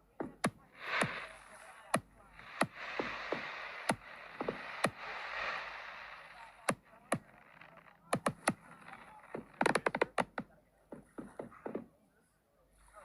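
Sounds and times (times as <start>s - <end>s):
fireworks bangs and cracks: 2.4s - 7.6s.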